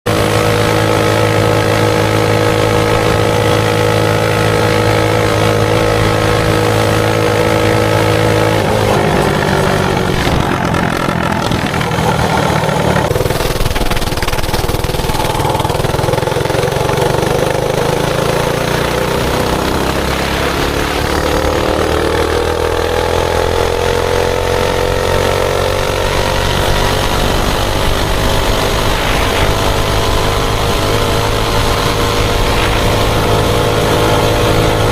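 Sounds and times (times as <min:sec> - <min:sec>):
mini bike engine running: 0:00.1 - 0:34.9.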